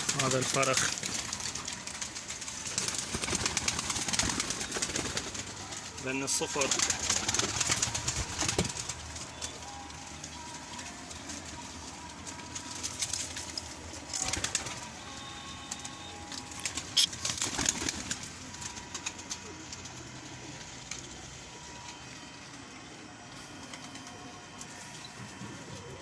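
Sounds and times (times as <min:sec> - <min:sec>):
sharp clicks and rustles: 0:00.0 - 0:22.3
pigeons cooing: 0:00.0 - 0:26.0.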